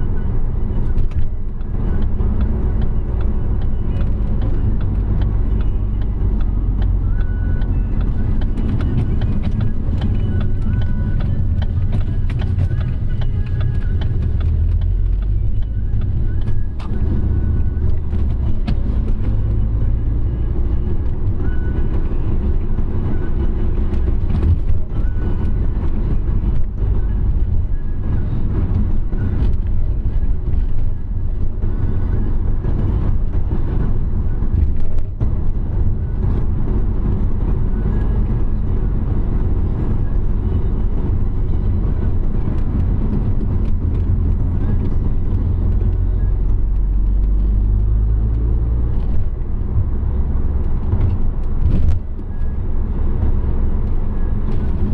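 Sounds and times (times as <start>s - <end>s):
car engine and road noise: 0.0s - 54.9s.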